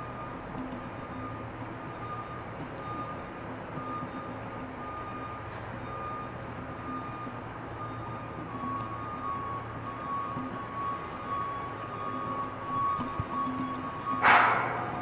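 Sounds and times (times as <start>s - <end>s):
reversing alarm beeping: 0.0s - 15.0s
traffic: 0.0s - 15.0s
machinery din: 14.2s - 15.0s.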